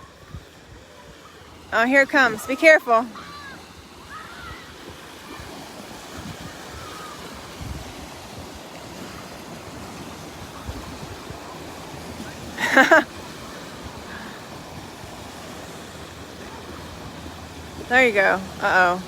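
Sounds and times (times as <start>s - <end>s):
small waves washing: 0.0s - 19.0s
wind gusting against microphone: 0.0s - 19.0s.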